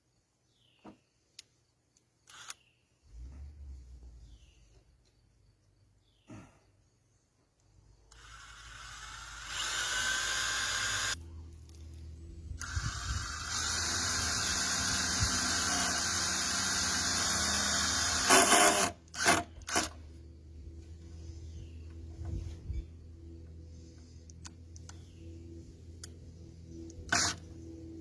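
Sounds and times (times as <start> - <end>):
power drill driving screws: 2.3 - 2.6, 8.1 - 11.2, 12.6 - 20.0, 27.1 - 27.4.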